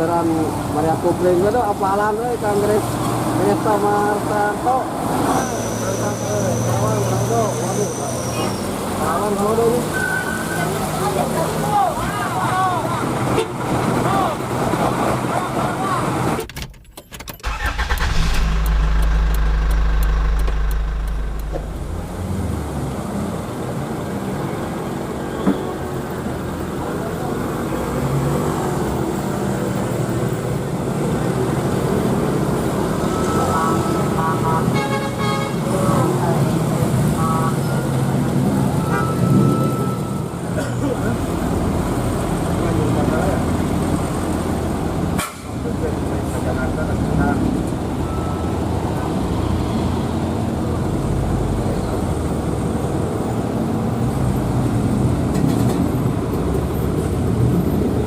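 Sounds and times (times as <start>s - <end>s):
road traffic: 0.0s - 58.0s
diesel truck engine rumbling: 10.8s - 25.0s
heavy truck engine droning: 17.4s - 23.9s.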